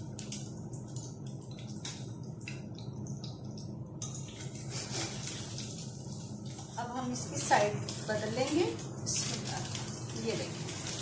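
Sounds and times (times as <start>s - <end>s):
bread sizzling in frying pan: 0.0s - 11.0s
steady low hum: 0.0s - 11.0s.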